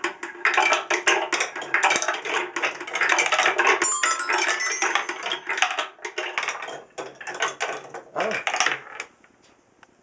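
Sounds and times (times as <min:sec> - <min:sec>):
marbles clattering down wooden run: 0:00.4 - 0:08.8
brief ringing tone: 0:03.8 - 0:05.6.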